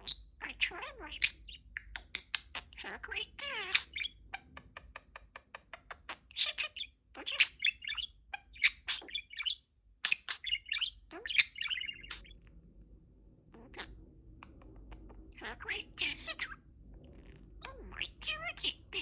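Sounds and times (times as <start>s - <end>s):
budgerigar chirping: 0.0s - 4.5s, 6.0s - 12.3s.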